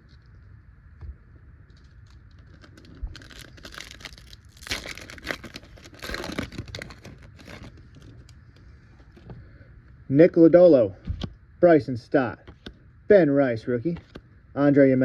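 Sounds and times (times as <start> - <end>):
wrapper tearing and crinkling: 1.7 - 8.3.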